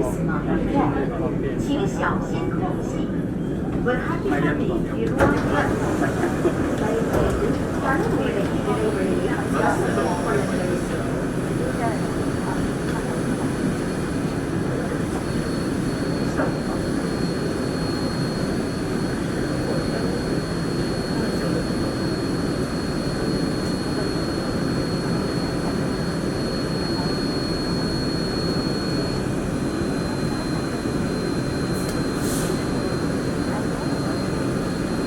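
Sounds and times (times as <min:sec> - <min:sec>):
train running rumble: 0:01.5 - 0:26.4.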